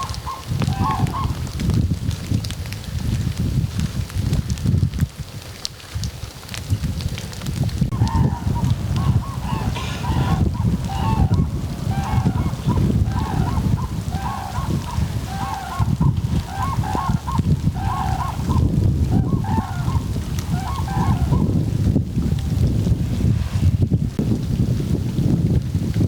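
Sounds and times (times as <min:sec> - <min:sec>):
geese honking: 0:00.0 - 0:01.6, 0:07.9 - 0:21.7.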